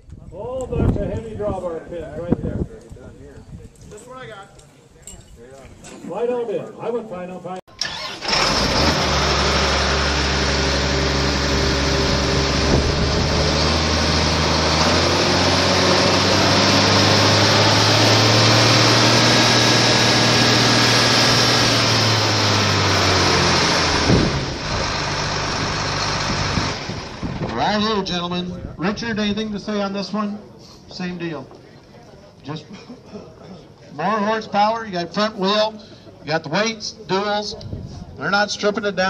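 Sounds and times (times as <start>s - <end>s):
tractor diesel engine: 7.7s - 28.2s.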